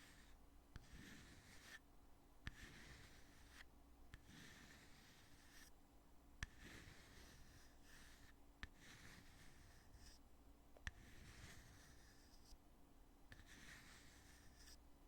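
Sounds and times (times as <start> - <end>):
soft rubbing scrape: 6.5 - 10.2, 11.0 - 12.6, 13.3 - 14.8.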